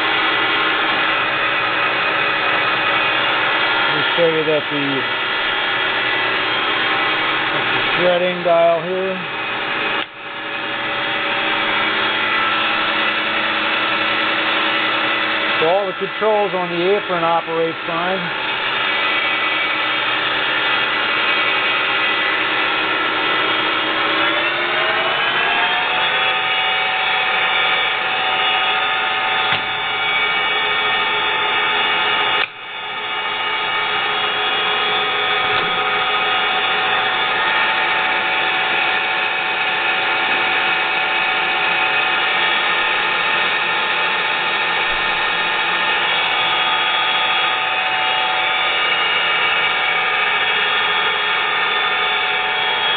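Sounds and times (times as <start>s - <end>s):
lathe motor whine: 0.0s - 52.9s.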